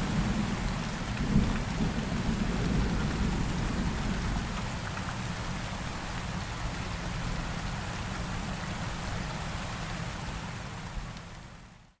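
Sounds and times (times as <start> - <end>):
heavy rain falling: 0.0 - 11.5.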